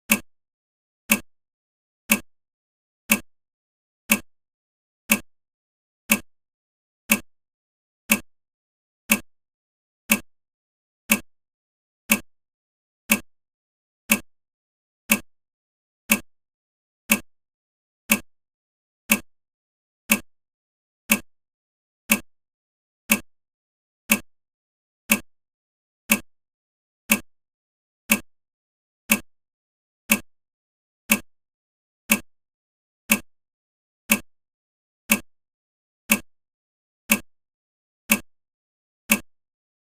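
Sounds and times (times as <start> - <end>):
sharp ticks: 1.1 - 1.3, 2.1 - 2.3, 3.1 - 3.3, 4.1 - 4.3, 5.1 - 5.3, 6.1 - 6.3, 7.1 - 7.3, 15.1 - 15.3, 16.1 - 16.3, 18.1 - 18.3, 19.1 - 19.3, 20.1 - 20.3, 21.1 - 21.3, 27.1 - 27.3, 28.1 - 28.3, 29.1 - 29.3, 30.1 - 30.3, 31.1 - 31.3, 32.1 - 32.3, 33.1 - 33.3, 34.1 - 34.3, 35.1 - 35.3, 36.1 - 36.3, 37.1 - 37.3, 38.1 - 38.3, 39.1 - 39.3.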